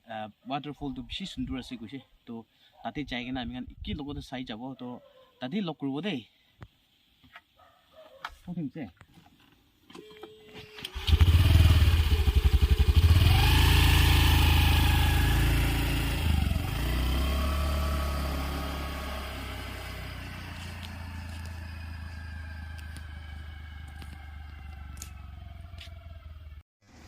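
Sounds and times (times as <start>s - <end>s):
small motorbike engine revving: 10.6s - 27.0s.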